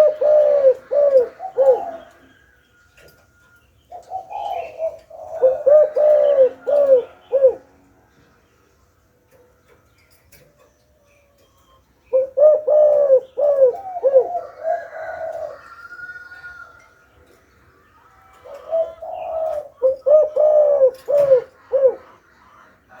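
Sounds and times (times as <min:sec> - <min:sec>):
dove cooing: 0:00.0 - 0:02.4, 0:03.9 - 0:07.8, 0:12.1 - 0:16.6, 0:18.3 - 0:23.0.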